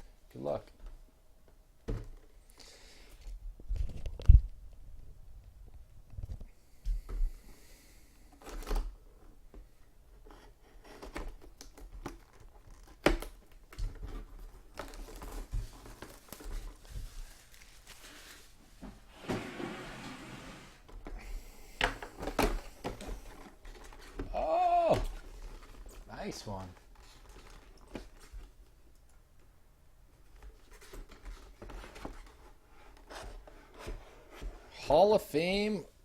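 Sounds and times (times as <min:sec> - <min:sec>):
packaging rustling: 0:10.8 - 0:18.6, 0:25.0 - 0:28.6.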